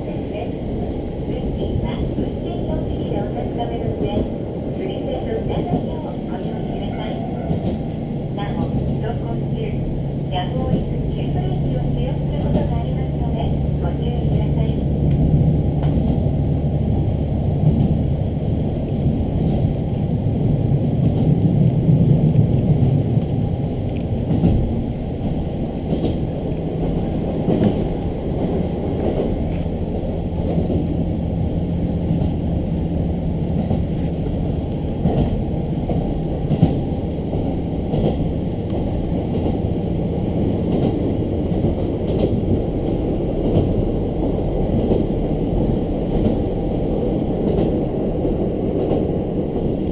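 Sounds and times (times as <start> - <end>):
railcar engine drone: 0.0 - 49.9
rumble of train wheels: 0.0 - 49.9
clacks over rail joints: 7.5 - 7.9, 20.9 - 29.7, 33.1 - 39.7, 40.6 - 46.5.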